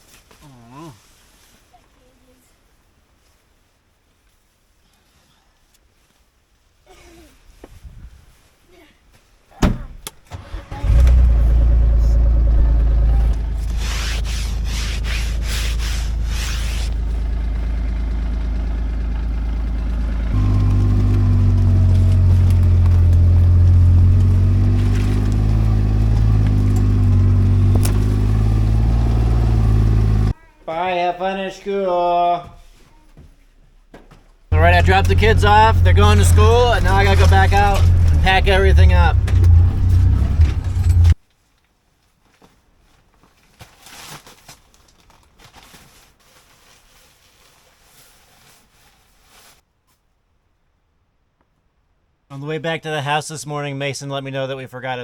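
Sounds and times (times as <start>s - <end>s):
rustling and crinkling: 0.0s - 9.6s, 13.2s - 17.2s, 20.3s - 29.4s, 32.5s - 50.2s
vehicle engine running: 10.8s - 30.4s, 34.5s - 41.2s.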